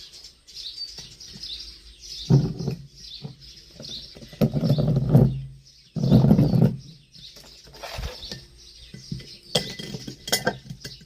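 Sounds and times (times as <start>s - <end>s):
small bird chirping: 0.0s - 11.0s
rustling and knocking: 2.3s - 11.0s.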